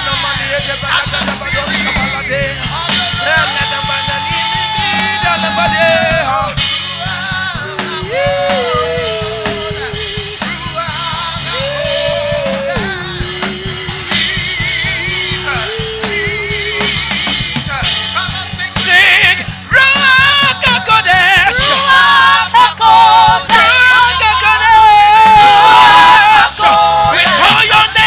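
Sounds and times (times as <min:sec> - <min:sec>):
drum kit steady beat: 0:00.0 - 0:28.0
worship music: 0:00.0 - 0:28.0
person singing long sliding notes: 0:01.8 - 0:17.1.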